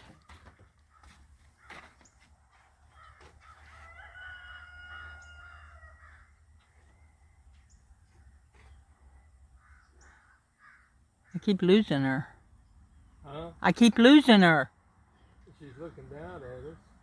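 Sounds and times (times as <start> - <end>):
faint bird calls: 5.0 - 11.4.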